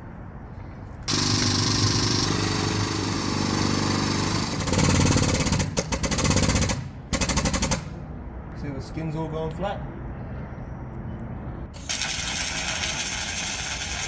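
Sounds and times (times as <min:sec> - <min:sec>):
power tool humming: 0:01.1 - 0:04.7.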